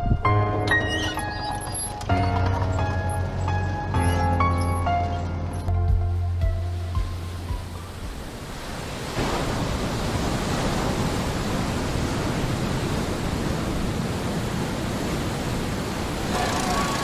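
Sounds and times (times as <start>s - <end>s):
wind on microphone: 0.0s - 0.4s
ocean surf: 7.0s - 17.0s.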